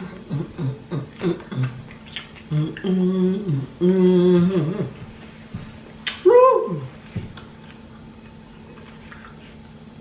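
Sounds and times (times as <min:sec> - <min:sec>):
woman humming: 0:00.0 - 0:01.9, 0:02.5 - 0:05.2, 0:06.2 - 0:07.0.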